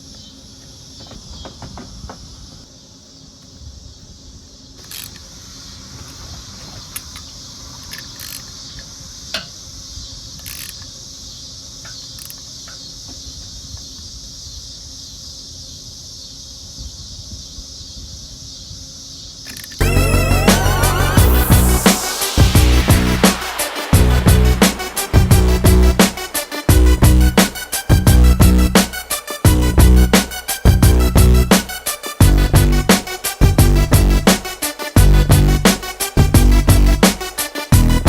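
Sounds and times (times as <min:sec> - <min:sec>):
crickets chirring: 0:00.0 - 0:20.7.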